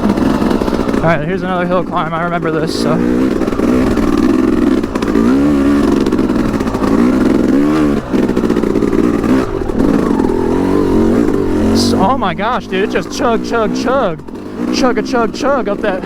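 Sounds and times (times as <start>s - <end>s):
two-stroke engine chugging: 0.0s - 16.0s.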